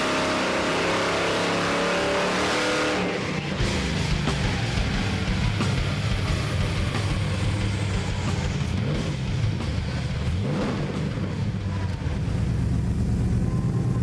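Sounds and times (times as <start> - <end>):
engine revving on dyno: 0.0 - 11.6.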